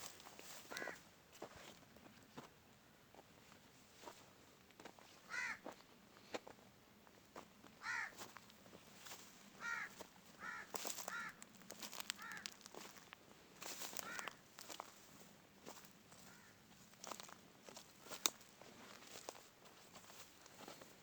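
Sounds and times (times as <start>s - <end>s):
footsteps crackling underfoot: 0.0s - 2.5s, 7.4s - 21.0s
crow cawing: 0.6s - 1.0s, 5.3s - 5.7s, 7.8s - 8.3s, 9.6s - 11.4s, 12.0s - 12.7s, 13.8s - 14.4s, 16.2s - 16.6s.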